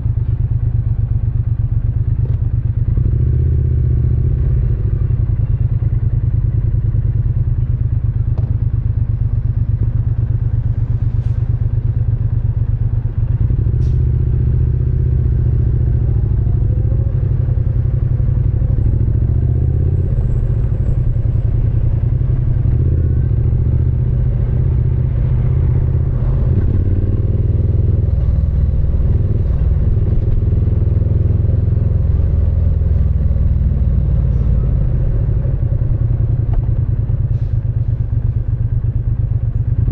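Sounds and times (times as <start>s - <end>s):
motorcycle engine revving: 13.2s - 37.4s.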